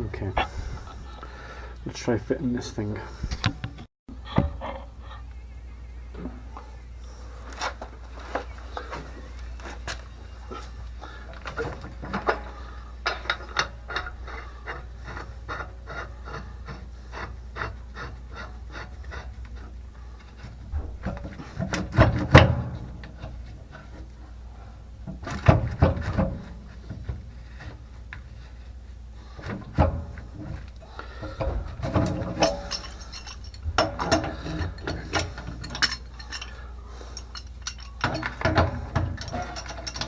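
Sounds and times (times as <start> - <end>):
light clicks and scraping of pipework: 9.7 - 24.3, 25.1 - 40.0
clattering knocks of metal: 20.4 - 23.9, 25.0 - 27.3, 29.4 - 40.0.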